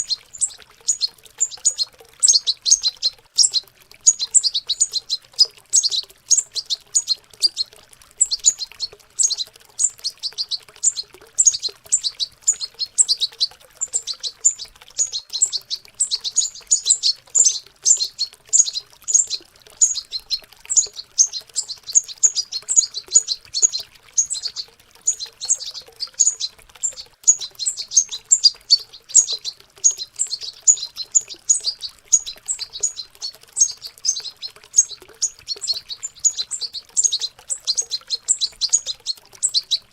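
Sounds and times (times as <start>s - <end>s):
young goldfinches twittering: 0.0s - 39.9s.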